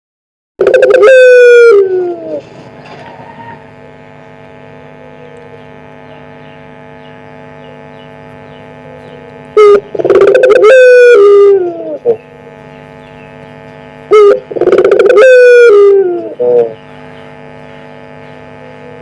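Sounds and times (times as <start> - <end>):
dove cooing: 0.6 - 3.8, 8.6 - 12.6, 14.1 - 17.5
steady hum: 0.6 - 19.0.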